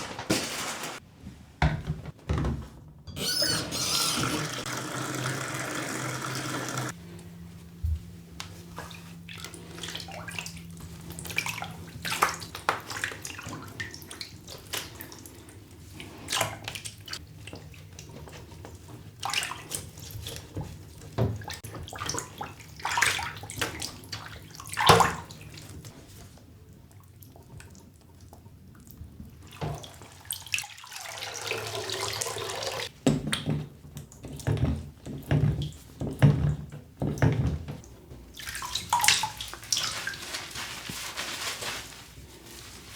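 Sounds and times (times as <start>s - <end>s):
water running from a tap: 3.8s - 7.0s, 30.6s - 32.9s
water splashing: 38.4s - 41.8s.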